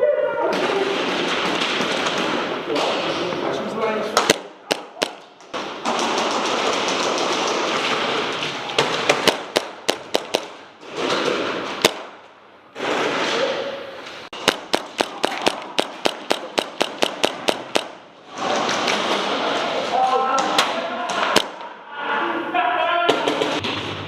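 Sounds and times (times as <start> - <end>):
airsoft guns firing: 0.5 - 3.3, 4.1 - 13.4, 14.3 - 19.6, 20.4 - 21.7.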